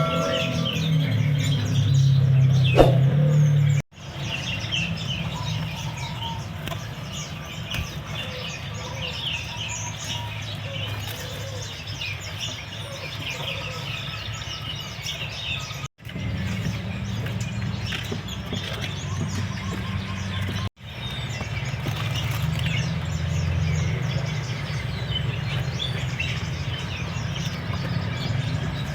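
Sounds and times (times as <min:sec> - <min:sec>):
songbirds chirping: 0:00.0 - 0:28.9.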